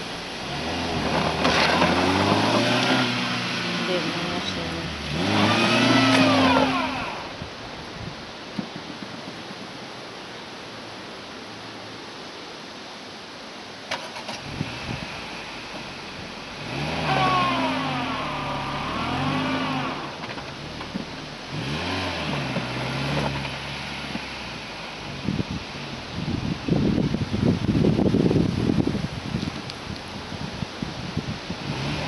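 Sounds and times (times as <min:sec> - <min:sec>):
wheels spinning in sand: 0:00.0 - 0:07.4
car engine revving: 0:00.0 - 0:07.6, 0:13.9 - 0:27.2, 0:31.3 - 0:32.0.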